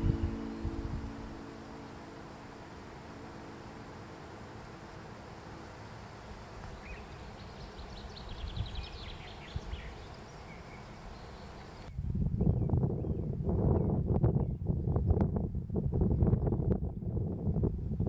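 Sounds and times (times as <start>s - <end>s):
songbird trilling: 0.0s - 5.9s, 6.6s - 13.2s
background hiss: 0.0s - 11.9s
low rushing noise: 0.0s - 11.9s.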